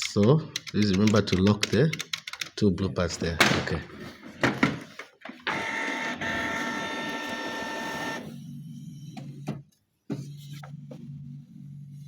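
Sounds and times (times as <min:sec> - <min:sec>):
printer motors whirring: 0:05.3 - 0:10.7.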